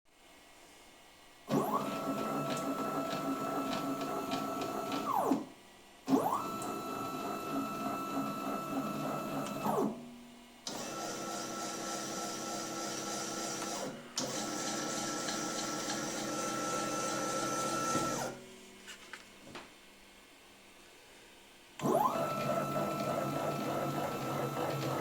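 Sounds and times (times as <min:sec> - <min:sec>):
lathe motors whining: 0:10.7 - 0:18.4, 0:21.8 - 0:25.0.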